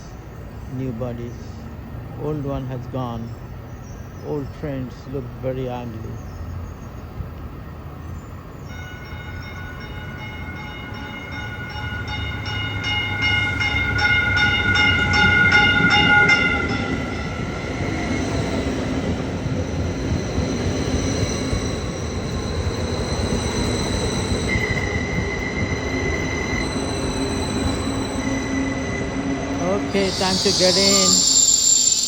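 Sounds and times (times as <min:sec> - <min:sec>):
electric train whine: 0:00.0 - 0:32.0
train wheels clicking: 0:12.4 - 0:32.0.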